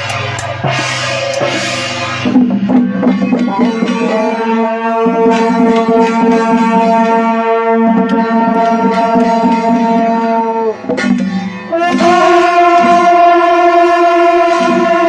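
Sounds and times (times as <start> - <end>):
steady drum beats: 0.0 - 15.0
wind instrument long bright notes: 3.2 - 15.0.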